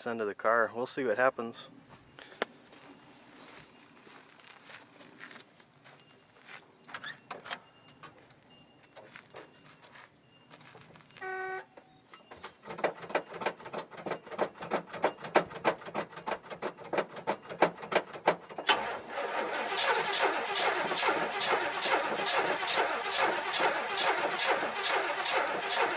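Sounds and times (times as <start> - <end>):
buzzer tone: 11.2 - 11.8
starter motor cranking: 18.6 - 25.9
car engine running unevenly: 18.7 - 25.9.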